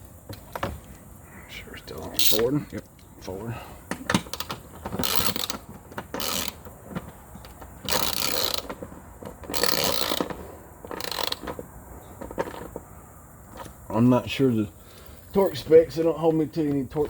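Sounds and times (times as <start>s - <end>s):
ratchet wrench clicking: 2.2s - 2.5s, 4.2s - 6.7s, 7.5s - 8.8s, 9.5s - 11.6s.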